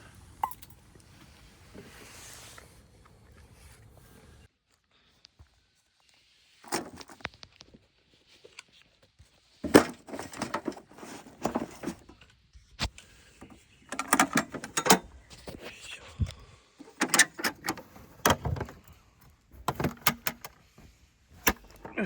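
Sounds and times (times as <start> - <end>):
objects clattering and knocking: 9.6 - 12.2, 13.4 - 15.6, 16.8 - 22.0.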